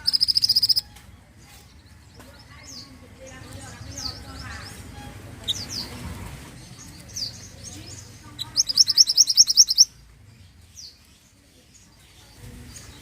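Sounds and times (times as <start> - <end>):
songbird chirps and trill: 0.0 - 13.0.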